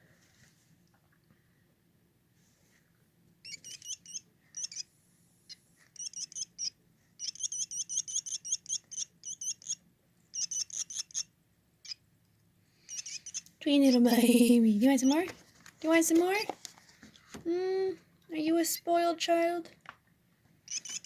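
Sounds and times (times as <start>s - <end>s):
baby bird chirping: 3.4s - 4.9s, 5.5s - 12.0s, 12.8s - 15.3s, 15.9s - 16.5s, 20.7s - 21.0s.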